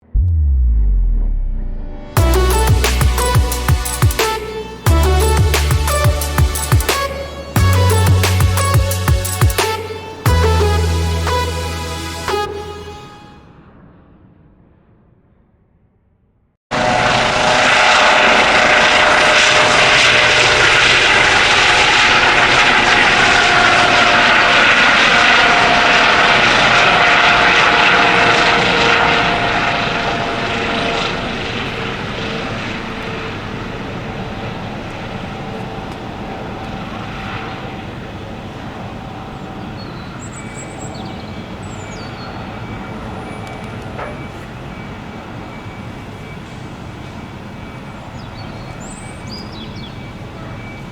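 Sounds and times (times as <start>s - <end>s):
turbine aircraft passing: 0.0s - 15.0s, 16.7s - 50.9s.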